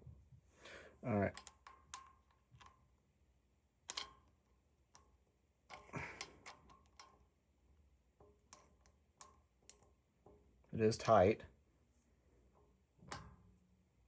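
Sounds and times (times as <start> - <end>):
coin clicking and scraping in metal: 3.9 - 4.3.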